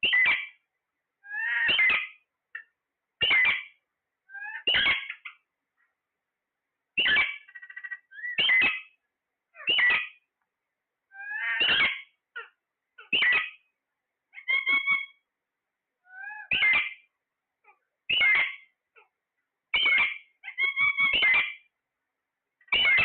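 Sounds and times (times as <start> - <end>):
parrot squawking: 0.0 - 0.6, 1.2 - 2.6, 3.2 - 5.4, 7.0 - 10.2, 11.1 - 13.6, 14.3 - 15.2, 16.0 - 19.1, 19.7 - 21.7, 22.7 - 23.0.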